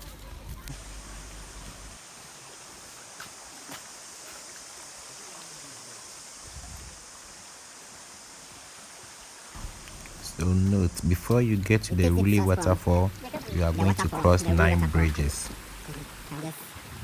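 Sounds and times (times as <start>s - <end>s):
outdoor background hiss: 0.0s - 17.0s
low rumble: 9.6s - 14.5s.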